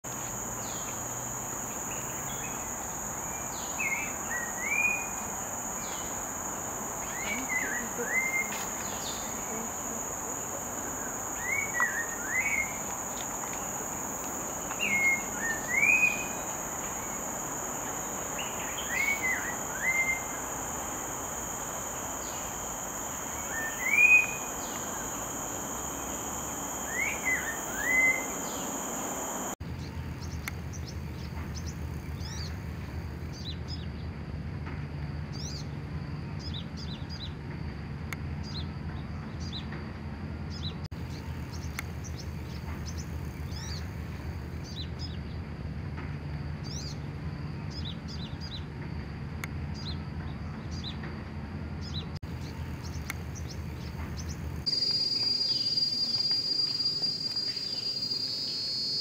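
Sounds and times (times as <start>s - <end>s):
high-pitched insect drone: 0.1s - 29.6s, 52.3s - 59.0s
bird singing whistled phrase: 23.5s - 24.5s, 26.9s - 28.7s.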